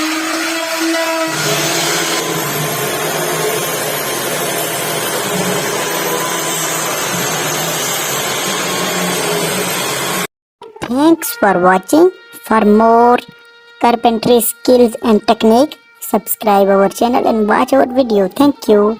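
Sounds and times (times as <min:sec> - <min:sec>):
woodworking power tool running: 0:00.0 - 0:10.3.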